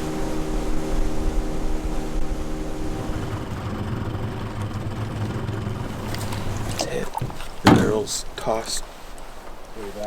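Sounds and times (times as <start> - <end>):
vehicle engine running: 0.0 - 7.0.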